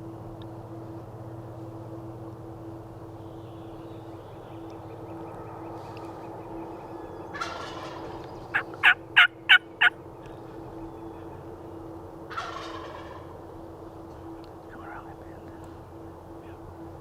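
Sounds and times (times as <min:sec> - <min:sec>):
turkey gobbling: 0:05.2 - 0:10.0, 0:12.3 - 0:13.3
turkey yelps: 0:07.3 - 0:10.0, 0:12.3 - 0:13.2.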